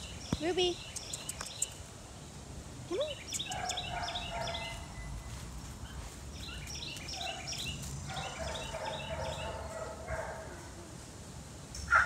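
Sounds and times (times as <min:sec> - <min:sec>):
bird chirping: 0:00.0 - 0:01.8, 0:02.9 - 0:09.8
outdoor background noise: 0:00.0 - 0:12.0.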